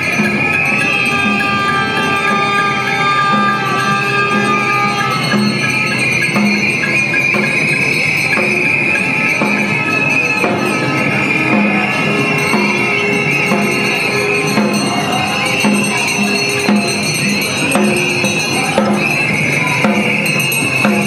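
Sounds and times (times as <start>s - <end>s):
street percussion beat: 0.0s - 21.0s
tambourine jingling: 0.0s - 21.0s.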